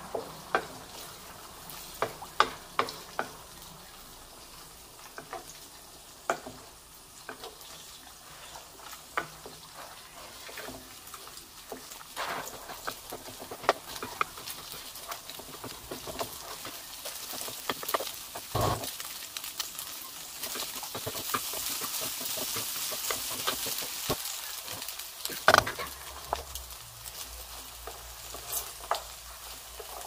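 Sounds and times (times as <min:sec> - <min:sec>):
food sizzling in a wok: 0:00.0 - 0:30.0
spatula clicking against pan: 0:06.2 - 0:06.6
wooden spatula scraping pan: 0:08.2 - 0:11.0, 0:12.2 - 0:19.0, 0:20.4 - 0:26.5, 0:27.8 - 0:30.0.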